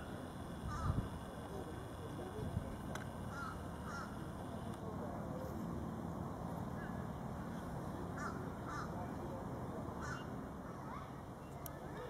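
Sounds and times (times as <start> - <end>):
bird calling: 0.6 - 1.0, 3.3 - 4.2, 8.2 - 9.0, 10.0 - 12.0.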